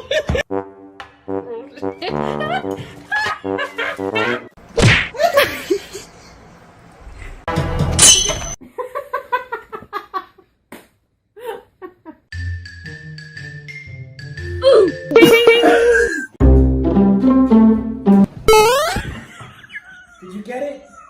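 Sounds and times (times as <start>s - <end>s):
music: 0.5s - 4.5s, 7.5s - 8.0s, 12.3s - 15.2s, 16.4s - 18.3s.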